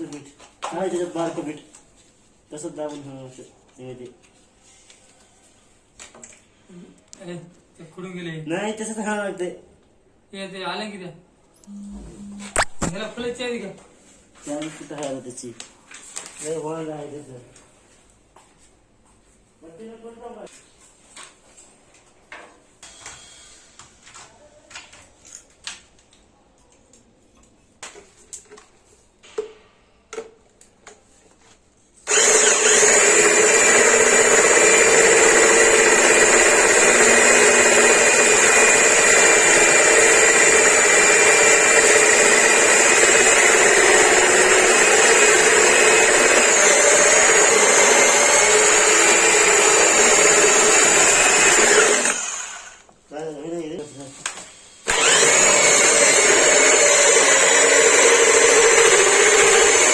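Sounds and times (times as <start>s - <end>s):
drill cutting metal with hole saw: 32.0s - 52.8s, 54.6s - 59.9s.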